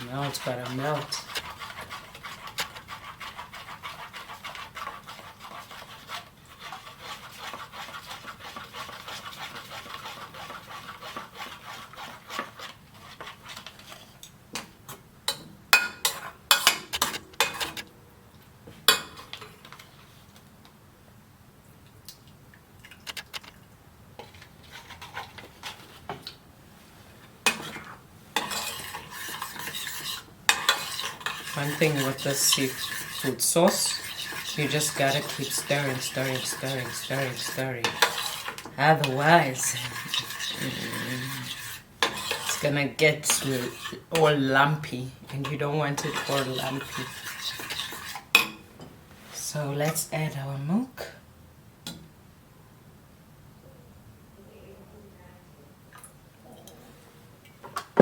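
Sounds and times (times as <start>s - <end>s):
stirring and scraping in pot: 0.0s - 17.9s, 18.7s - 20.4s, 24.2s - 50.6s.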